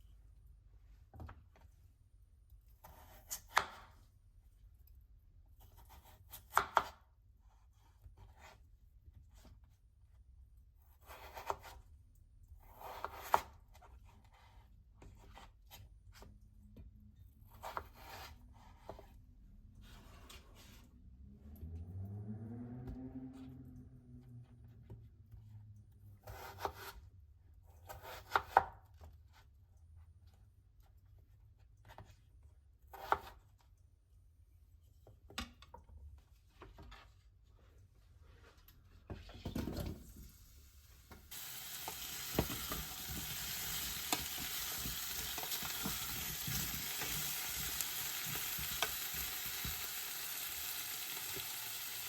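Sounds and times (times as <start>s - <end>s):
knife scraping board: 2.8s - 3.9s, 10.9s - 11.8s, 12.7s - 14.6s, 17.5s - 19.2s, 26.2s - 27.0s, 27.8s - 28.7s, 32.9s - 33.4s
knife cutting on cutting board: 2.8s - 4.0s, 10.9s - 11.8s, 12.7s - 14.4s, 17.5s - 19.2s, 26.2s - 27.0s, 27.9s - 28.8s, 32.9s - 33.4s.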